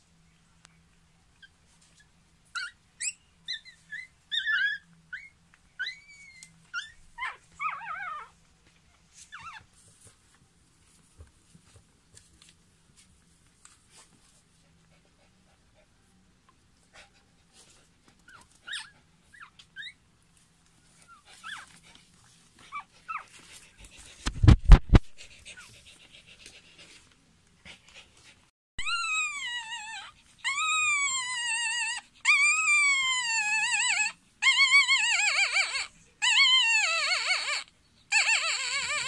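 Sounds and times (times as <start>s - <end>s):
puppy squeaking and crying: 1.4s - 8.4s, 9.2s - 9.7s, 18.2s - 20.0s, 20.9s - 21.8s, 22.7s - 23.4s, 28.8s - 39.0s.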